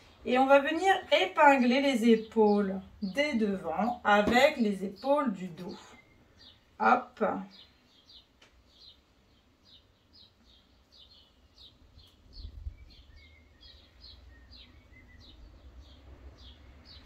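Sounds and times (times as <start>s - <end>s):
small bird chirping: 4.8s - 17.0s.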